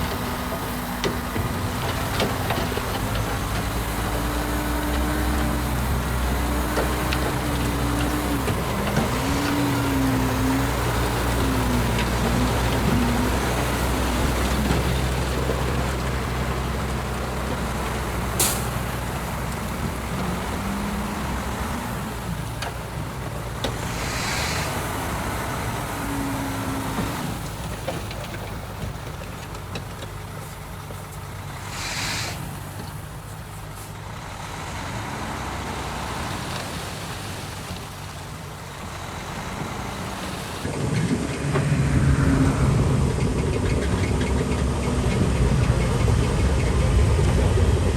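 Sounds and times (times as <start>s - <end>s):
heavy diesel engines running: 0.0s - 47.9s
air brake hisses: 18.4s - 18.8s, 23.8s - 25.2s, 31.6s - 32.8s.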